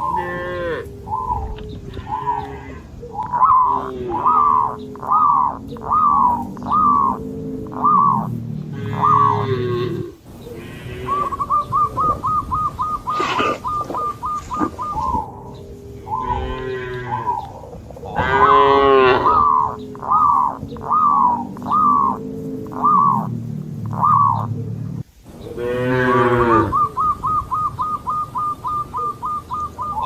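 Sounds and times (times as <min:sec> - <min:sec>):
cattle mooing: 0:00.0 - 0:00.9, 0:03.5 - 0:04.8, 0:06.9 - 0:11.4, 0:15.4 - 0:20.0, 0:25.5 - 0:26.8.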